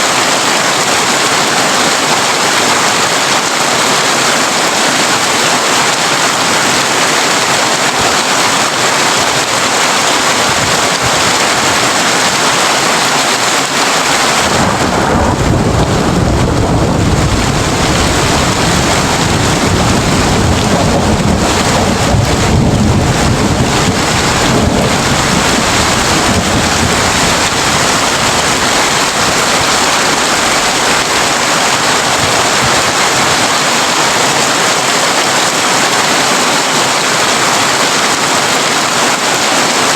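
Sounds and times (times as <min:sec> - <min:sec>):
heavy rain on a tin roof: 0:00.0 - 0:39.9
thunder rumbling: 0:13.4 - 0:34.2.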